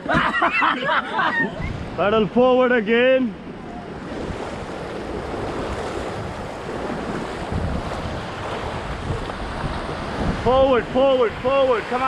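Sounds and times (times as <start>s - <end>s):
river water rushing: 1.2s - 12.0s
wind buffeting microphone: 1.4s - 12.0s.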